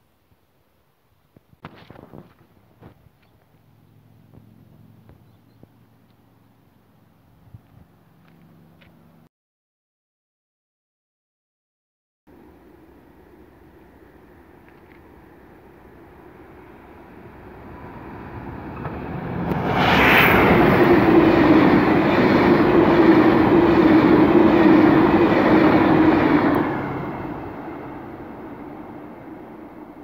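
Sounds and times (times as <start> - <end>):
train wheels rushing on rails: 13.4 - 30.0.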